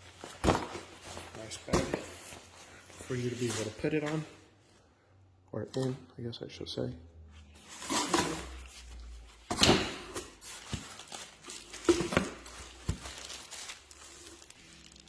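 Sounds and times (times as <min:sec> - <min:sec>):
packaging crinkling and rustling: 0:07.6 - 0:15.0.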